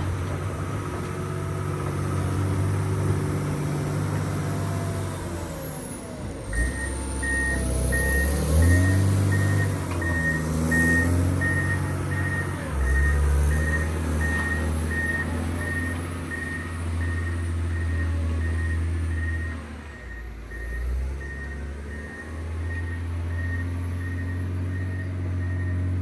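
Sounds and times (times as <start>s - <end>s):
diesel engine under load: 0.0s - 26.0s
reversing alarm beeping: 5.4s - 26.0s.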